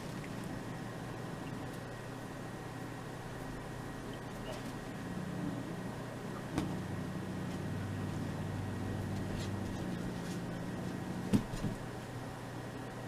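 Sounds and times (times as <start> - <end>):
cat growling low: 4.4 - 11.3.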